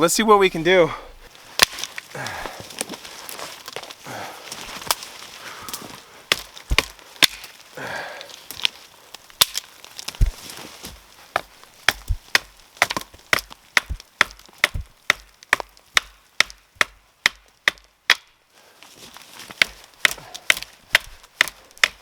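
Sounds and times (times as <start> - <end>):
hatchet chopping wood: 6.3 - 7.6, 9.4 - 18.4, 19.5 - 22.0.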